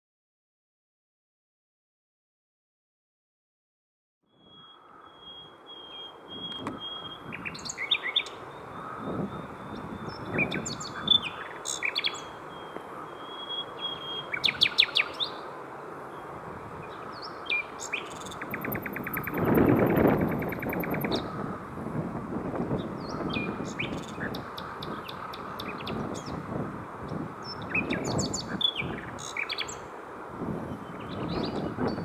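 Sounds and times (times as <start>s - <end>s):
nightingale singing: 4.3s - 15.5s, 16.1s - 21.4s, 22.8s - 26.4s, 27.4s - 29.9s
background hiss: 4.5s - 22.8s
wind on microphone: 6.2s - 7.9s, 8.5s - 11.6s, 16.1s - 32.0s.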